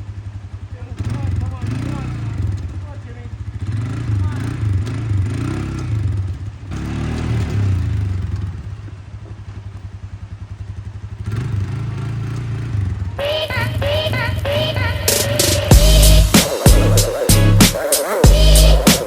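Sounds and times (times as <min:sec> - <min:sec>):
vehicle engine low throb: 0:04.6 - 0:18.9
short chirpy music notes: 0:15.5 - 0:19.0.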